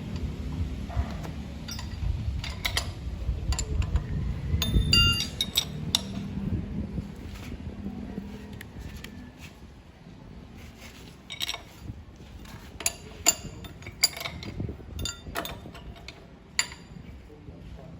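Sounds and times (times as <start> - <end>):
low background noise: 0.0 - 17.9
metallic clinks and knocks: 0.9 - 6.4, 11.2 - 17.1.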